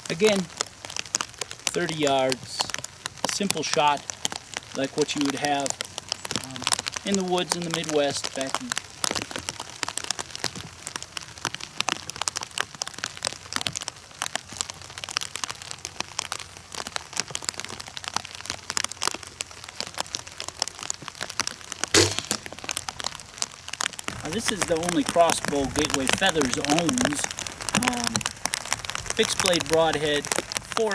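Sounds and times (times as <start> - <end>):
heavy rain pattering: 0.0 - 30.9
crossbow firing snap: 22.0 - 22.6.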